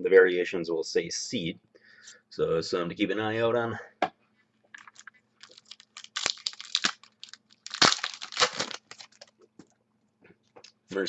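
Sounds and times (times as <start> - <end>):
foil pack crinkling: 4.8 - 9.4.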